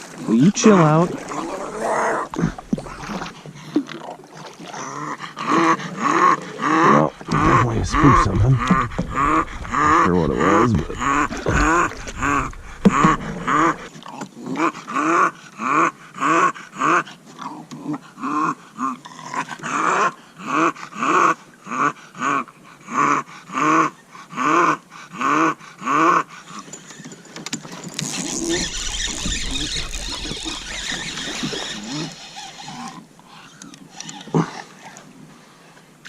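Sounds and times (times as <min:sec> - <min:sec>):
rushing noise with low rumble: 0:07.2 - 0:13.9.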